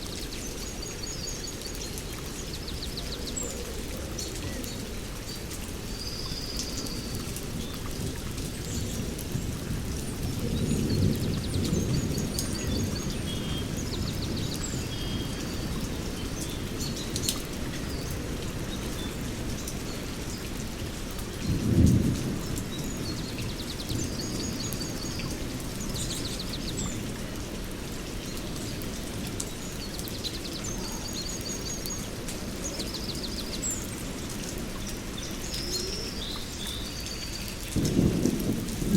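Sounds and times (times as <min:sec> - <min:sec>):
steady rain: 0:00.0 - 0:38.9
rolling thunder: 0:08.0 - 0:14.9, 0:21.4 - 0:26.4, 0:37.7 - 0:38.9.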